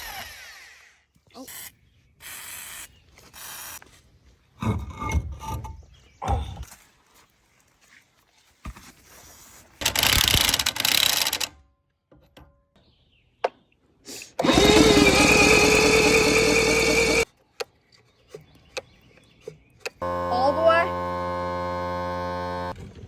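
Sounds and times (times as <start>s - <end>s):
power drill whining: 0.0s - 1.0s, 14.4s - 17.3s, 20.0s - 22.8s.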